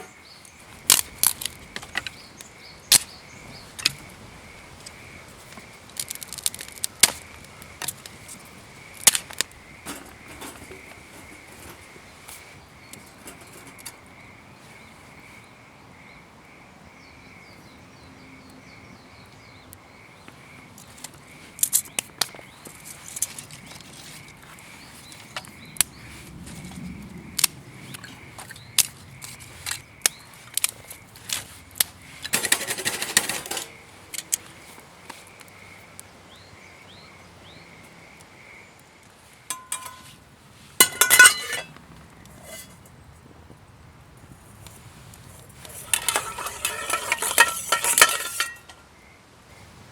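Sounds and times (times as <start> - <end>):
cooking utensils clinking: 9.2 - 12.0, 13.0 - 14.0, 32.3 - 33.8, 39.5 - 40.2, 40.8 - 41.8, 42.4 - 42.8, 45.6 - 48.8.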